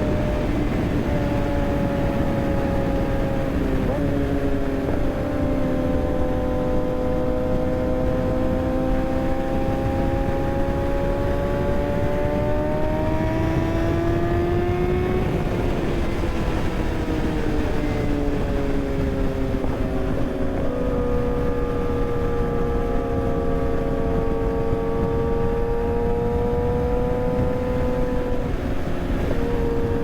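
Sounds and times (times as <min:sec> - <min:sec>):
heavy wind noise: 0:00.0 - 0:30.0
motorcycle engine revving: 0:00.0 - 0:30.0.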